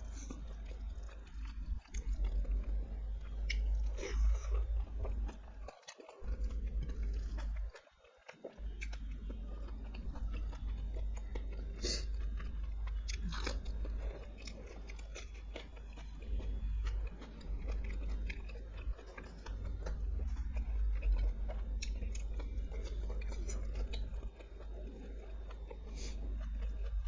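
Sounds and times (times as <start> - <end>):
food crunches: 0.0 - 27.0
person chewing food: 0.0 - 27.0
steady low hum: 0.0 - 27.0.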